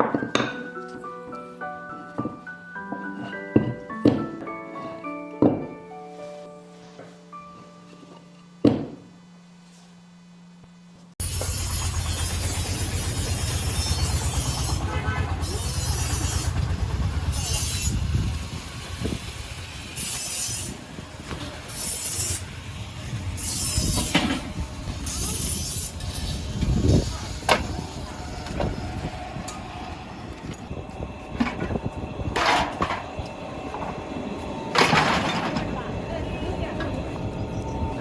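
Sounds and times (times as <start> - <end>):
low machine hum: 9.2 - 20.0, 22.4 - 38.0.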